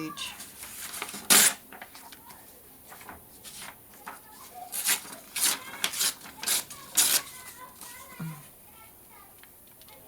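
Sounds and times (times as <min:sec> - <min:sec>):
paper rustling: 0:00.3 - 0:08.2.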